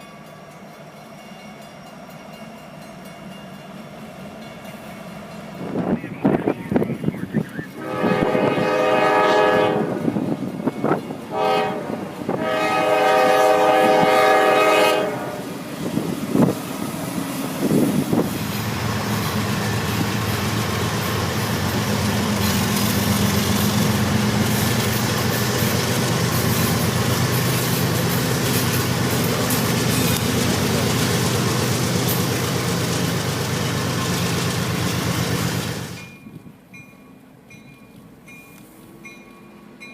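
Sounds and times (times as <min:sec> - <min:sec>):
train rumbling on rails: 0:00.0 - 0:39.9
train horn blasts: 0:07.7 - 0:10.2, 0:11.3 - 0:15.6.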